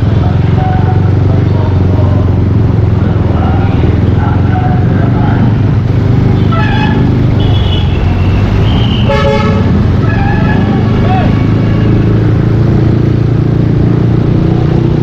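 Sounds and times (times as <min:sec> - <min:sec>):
scooter engine running: 0:00.0 - 0:15.0
vehicle horn toot: 0:06.4 - 0:10.7.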